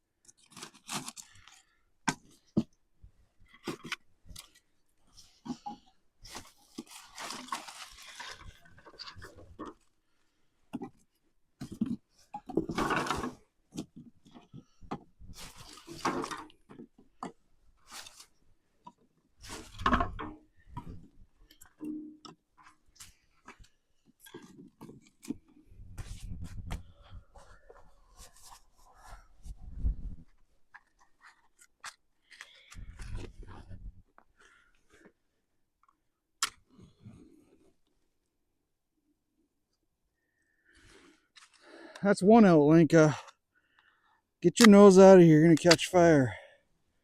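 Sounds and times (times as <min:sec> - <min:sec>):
rustling and scraping of objects: 0:00.2 - 0:36.0.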